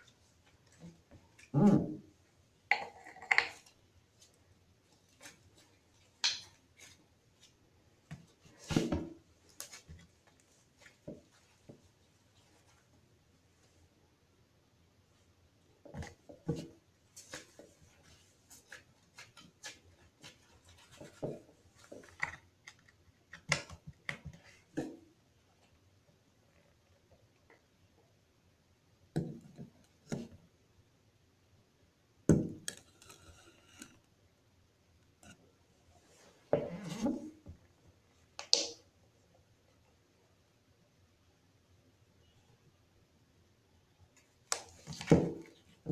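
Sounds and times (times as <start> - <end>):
faint scraping and rustling: 0.0 - 13.9, 15.1 - 23.3, 32.7 - 34.2, 35.1 - 38.2.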